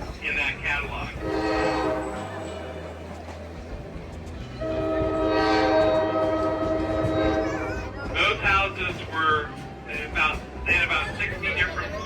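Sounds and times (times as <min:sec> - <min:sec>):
locomotive air horn: 0:01.2 - 0:02.5, 0:04.6 - 0:07.7.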